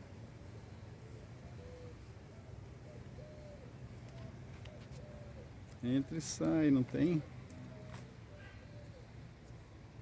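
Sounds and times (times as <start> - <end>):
faint bird cooing: 1.0 - 5.7, 7.6 - 9.2.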